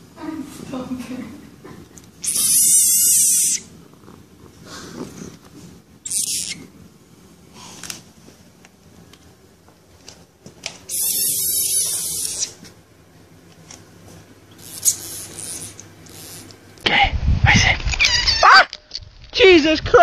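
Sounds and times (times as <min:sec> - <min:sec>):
frog screaming: 0:02.2 - 0:03.7, 0:06.0 - 0:06.6, 0:10.9 - 0:12.6, 0:18.0 - 0:18.8.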